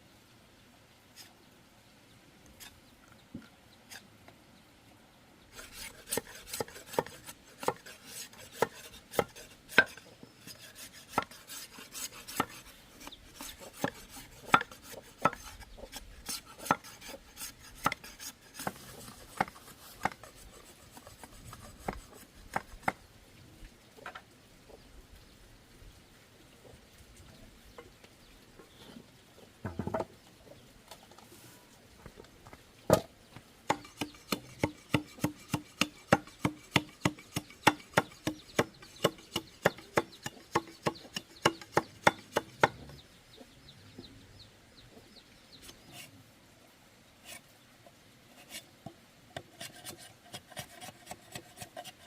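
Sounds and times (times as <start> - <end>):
sharp knocks on bamboo: 32.9 - 33.1.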